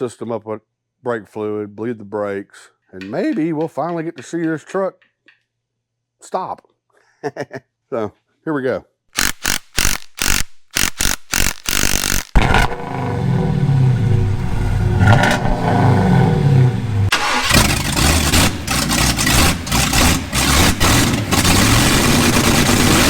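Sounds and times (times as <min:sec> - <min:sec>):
truck engine cranking and revving: 0:09.2 - 0:23.0.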